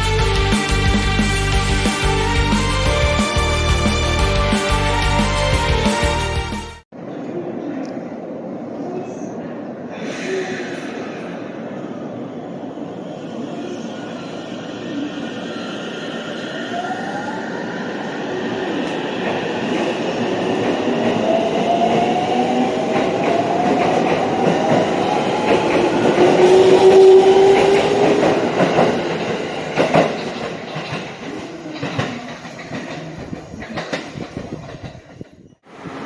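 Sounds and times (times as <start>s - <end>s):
train rumbling: 0.0s - 36.0s
wheels clicking over rail joints: 27.0s - 35.4s.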